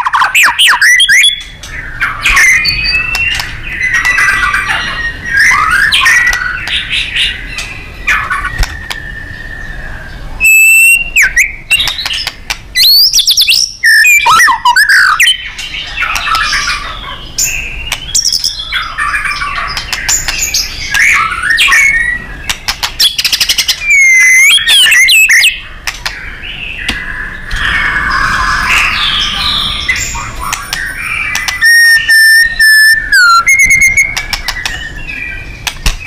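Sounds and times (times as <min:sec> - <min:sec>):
songbird whistling and trilling: 0:00.0 - 0:36.0.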